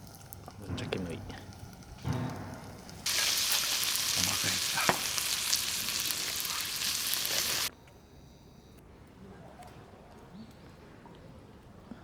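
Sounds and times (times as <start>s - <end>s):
food sizzling in a hot pan: 1.7s - 7.7s.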